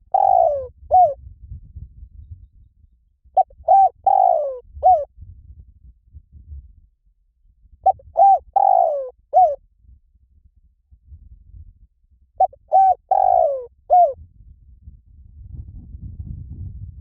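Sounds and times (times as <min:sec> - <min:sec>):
dove cooing: 0:00.0 - 0:01.2, 0:03.4 - 0:05.1, 0:07.9 - 0:09.6, 0:12.4 - 0:14.2.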